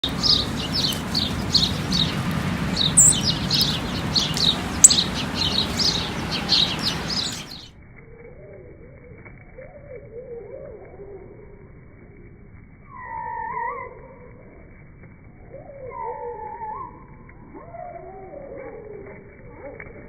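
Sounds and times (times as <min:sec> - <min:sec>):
sparrows chirping: 0:00.0 - 0:07.8
slowed deep wavering bird calls: 0:00.0 - 0:12.2, 0:12.8 - 0:20.0.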